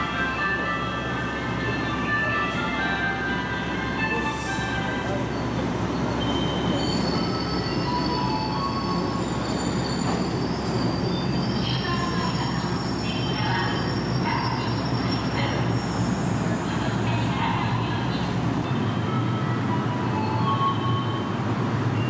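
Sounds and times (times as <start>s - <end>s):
train low rumble: 0.0s - 22.0s
train wheels squealing: 4.1s - 16.7s.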